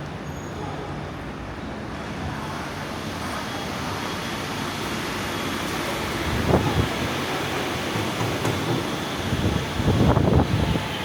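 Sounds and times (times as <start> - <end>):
steady rushing noise: 2.3 - 11.0.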